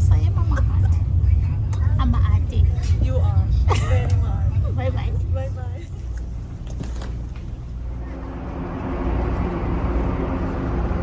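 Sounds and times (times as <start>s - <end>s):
train hum and hiss: 0.0s - 11.0s
train rumbling: 0.0s - 11.0s.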